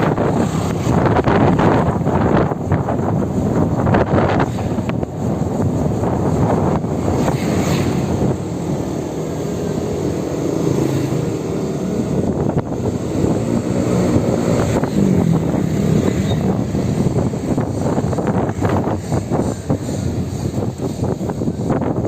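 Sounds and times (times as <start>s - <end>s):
road rumble: 0.0s - 22.0s
wind buffeting microphone: 0.0s - 22.0s.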